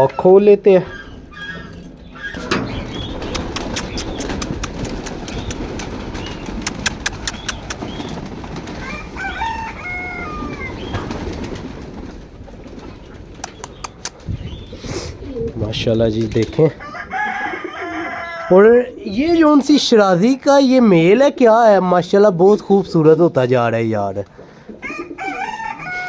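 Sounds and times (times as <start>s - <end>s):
pigeons flapping: 0.9s - 18.2s, 24.4s - 26.0s
sharp clicks: 2.3s - 8.1s, 13.4s - 14.2s.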